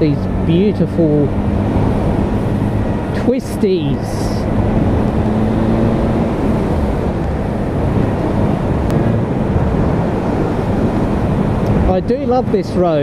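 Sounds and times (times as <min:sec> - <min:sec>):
wind rush over microphone: 0:00.0 - 0:13.0.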